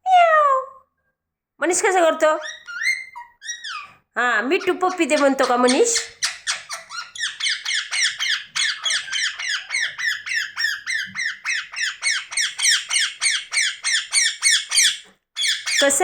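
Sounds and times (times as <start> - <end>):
parrot screeching: 2.4 - 4.0, 4.6 - 16.0.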